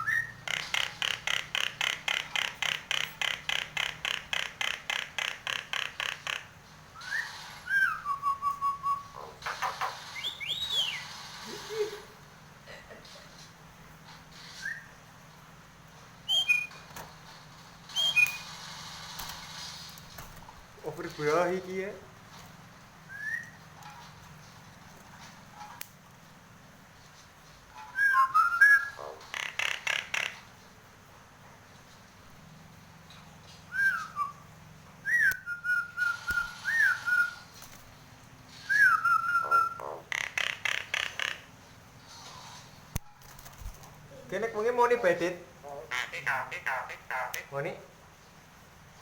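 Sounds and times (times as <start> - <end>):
bird whistled calls: 0.0 - 0.4, 7.0 - 9.3, 10.1 - 11.1, 14.5 - 15.0, 16.3 - 16.8, 17.9 - 18.5, 23.1 - 23.6, 27.8 - 29.0, 33.7 - 37.5, 38.6 - 39.9.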